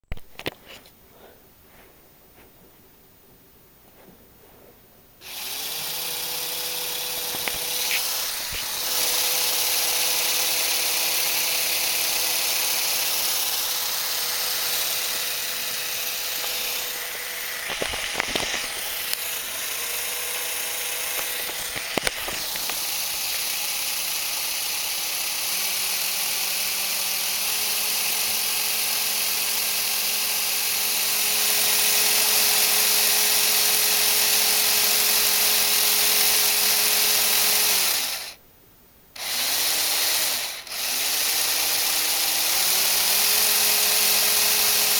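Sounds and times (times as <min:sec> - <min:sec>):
electric motors whirring: 0:05.2 - 0:38.4, 0:39.2 - 0:44.9
sharp clicks: 0:07.2 - 0:09.3.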